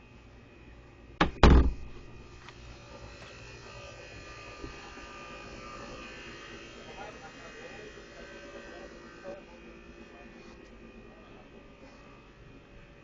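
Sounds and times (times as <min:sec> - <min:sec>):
electric buzzing hum: 0:00.0 - 0:10.0
loud double bump: 0:01.2 - 0:02.2.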